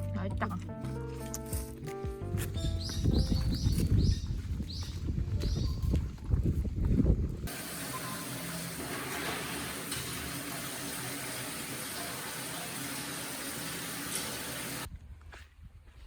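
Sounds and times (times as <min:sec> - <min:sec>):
food sizzling and bubbling: 0:07.5 - 0:14.9.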